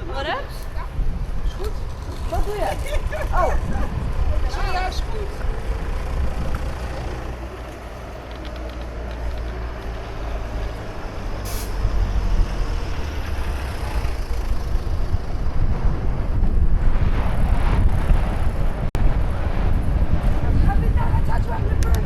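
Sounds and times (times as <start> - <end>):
traffic rumble: 0.0 - 22.0
air brakes hissing: 11.4 - 11.8.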